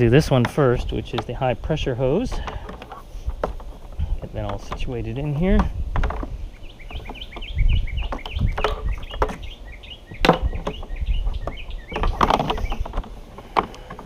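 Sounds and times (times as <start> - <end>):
hose knocking against plastic case: 2.2 - 7.3, 10.2 - 14.0
bird chirping: 6.2 - 13.0.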